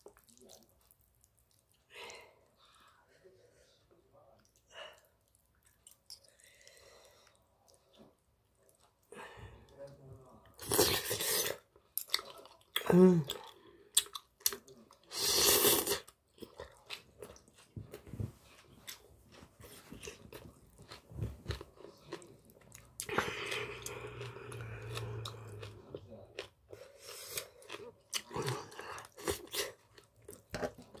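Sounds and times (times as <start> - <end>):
chewing and biting food: 16.0 - 31.0.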